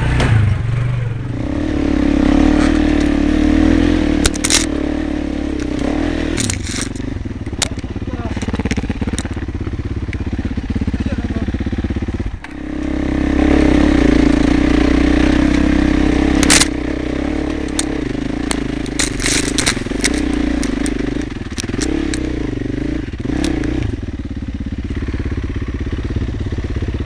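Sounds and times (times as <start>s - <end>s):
motorcycle engine running: 0.0s - 27.0s
sharp clicks and knocks: 4.2s - 4.8s, 5.6s - 9.5s, 16.3s - 22.4s, 23.2s - 23.9s.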